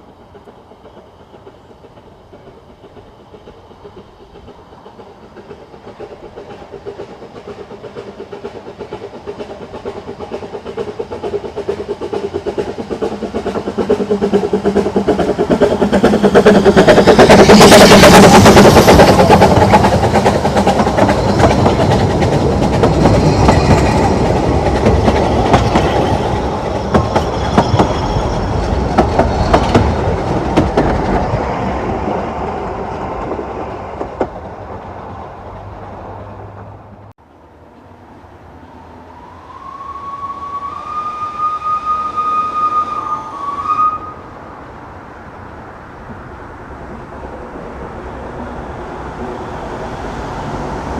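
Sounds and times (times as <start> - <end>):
train carriages clattering over rails: 0.0 - 38.0
high steady whistle: 25.1 - 29.7, 38.8 - 44.3.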